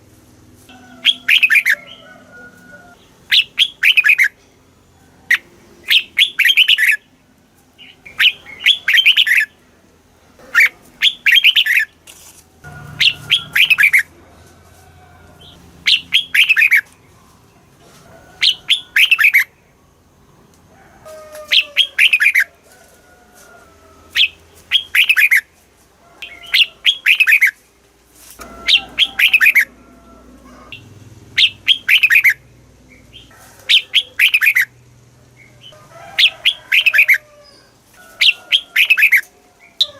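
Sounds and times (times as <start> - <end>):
bulbul singing whistled phrases: 1.0 - 1.8, 3.3 - 4.4, 5.3 - 7.0, 7.8 - 9.6, 10.6 - 11.9, 13.0 - 14.1, 15.9 - 16.9, 18.4 - 19.6, 21.5 - 22.5, 24.2 - 25.4, 26.2 - 27.6, 28.6 - 29.7, 31.4 - 34.8, 35.4 - 37.2, 38.2 - 39.9
faint bird calls: 15.4 - 17.5, 28.4 - 39.9.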